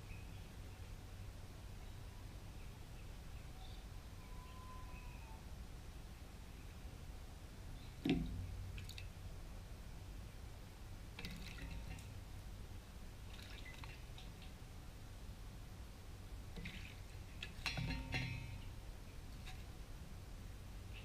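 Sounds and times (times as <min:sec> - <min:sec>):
low steady rumble: 0:00.0 - 0:21.0
bird splashing in bird bath: 0:08.0 - 0:09.1, 0:11.2 - 0:12.3, 0:13.2 - 0:14.6, 0:16.5 - 0:18.7.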